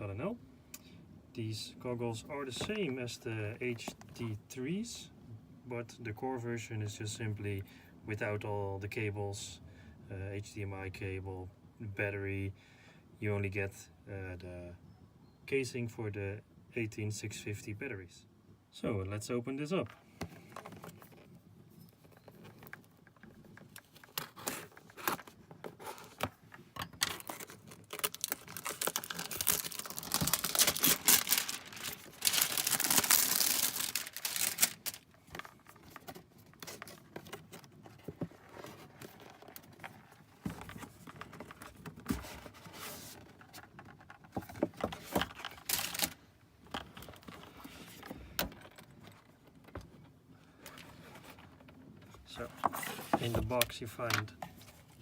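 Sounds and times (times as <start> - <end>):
packaging crinkling and tearing: 22.4 - 26.3, 27.0 - 37.5, 45.3 - 46.2
cardboard box being handled: 23.6 - 46.1.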